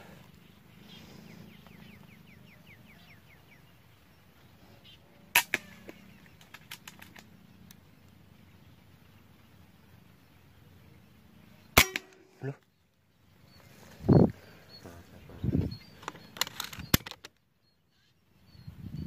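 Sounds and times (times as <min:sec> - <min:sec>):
air rifle shot crack: 0:05.3 - 0:06.1, 0:11.8 - 0:12.4.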